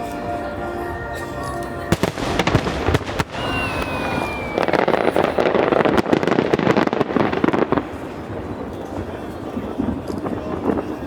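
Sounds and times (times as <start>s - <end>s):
fireworks crackling: 0.0s - 11.0s
whistling firework shell: 1.9s - 7.0s.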